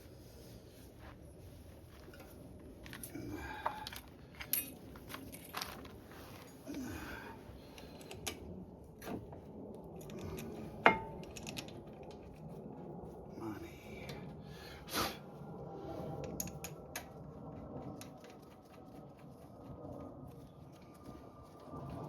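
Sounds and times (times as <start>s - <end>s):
metal tools clinking: 2.0s - 6.7s, 10.0s - 11.8s.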